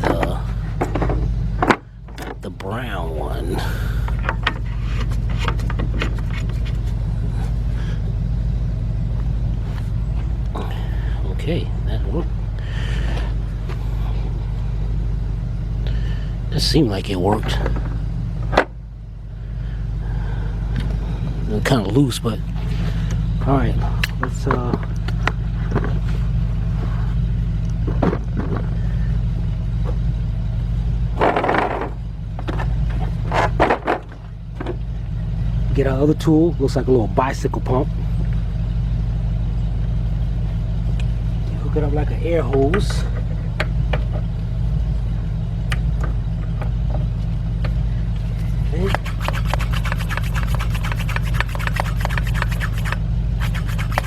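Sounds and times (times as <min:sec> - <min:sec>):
tools rattling and clattering: 0:00.0 - 0:02.5, 0:03.9 - 0:07.0, 0:24.1 - 0:26.2, 0:27.8 - 0:28.8, 0:31.2 - 0:34.9
engine idling: 0:00.0 - 0:54.0
low mechanical hum: 0:00.0 - 0:54.0.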